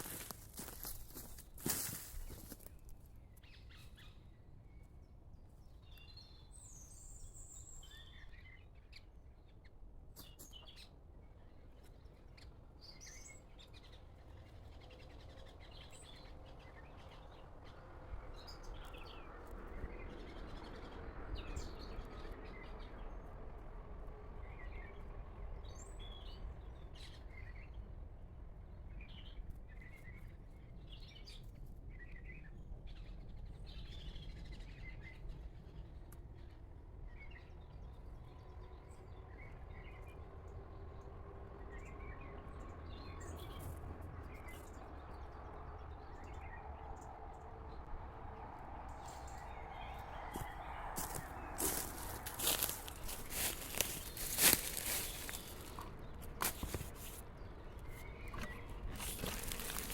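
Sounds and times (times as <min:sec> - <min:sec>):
birds chirping and calling: 0:50.3 - 0:57.2, 0:58.0 - 0:59.9.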